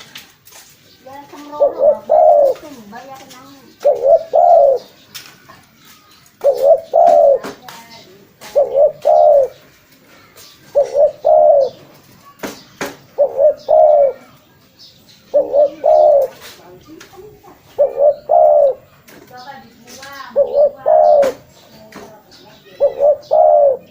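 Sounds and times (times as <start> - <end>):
dove cooing: 1.2 - 5.0, 6.4 - 11.9, 13.1 - 14.4, 15.2 - 19.0, 19.7 - 21.6, 22.5 - 23.9.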